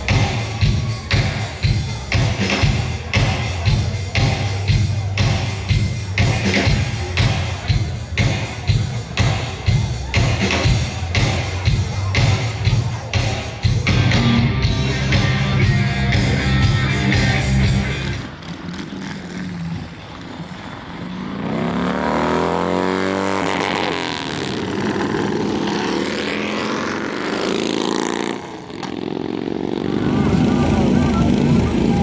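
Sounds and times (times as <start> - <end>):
bass-heavy music: 0.0 - 18.4, 29.9 - 32.0
motorcycle engine revving: 0.0 - 32.0.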